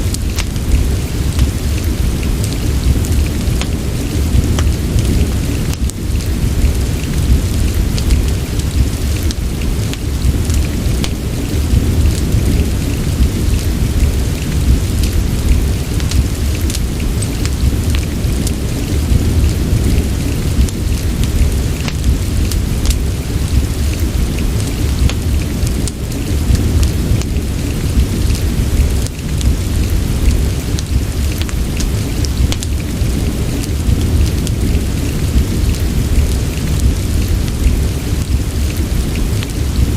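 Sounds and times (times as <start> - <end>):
deep low rumble: 0.0 - 39.9
fireplace crackling: 0.0 - 39.9
soft rain: 0.0 - 39.9
small ticks and pops: 0.1 - 0.6, 1.4 - 3.8, 4.5 - 6.0, 8.0 - 11.2, 20.6 - 23.0, 25.0 - 27.3, 30.2 - 32.9.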